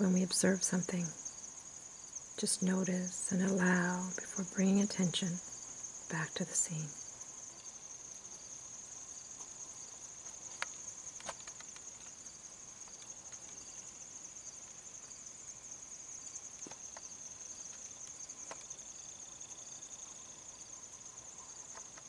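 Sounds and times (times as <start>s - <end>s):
insects trilling: 0.0s - 22.0s
faint clicks: 10.2s - 12.2s, 12.8s - 13.6s.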